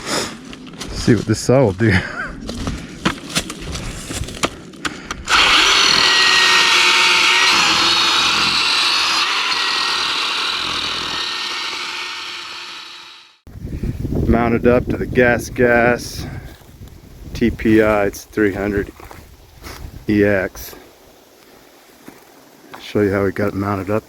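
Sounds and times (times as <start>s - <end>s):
chainsaw cutting wood: 5.3s - 13.4s.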